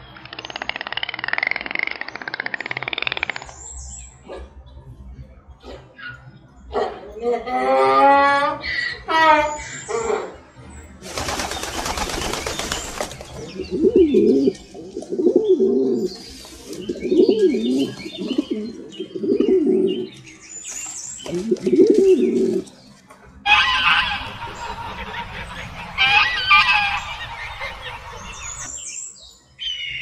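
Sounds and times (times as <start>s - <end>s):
pigeons cooing: 11.1s - 20.2s, 21.2s - 22.8s.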